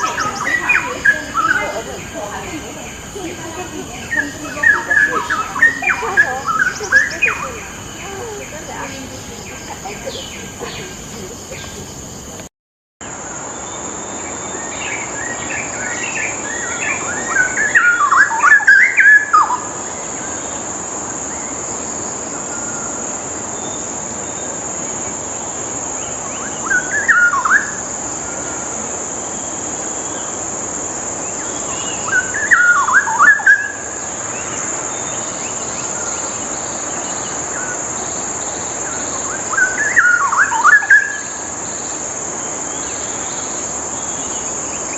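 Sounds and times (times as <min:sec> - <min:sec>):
bird singing warbled phrases: 0:00.0 - 0:12.4, 0:26.3 - 0:27.8, 0:31.3 - 0:41.5
steady hiss: 0:00.0 - 0:44.9.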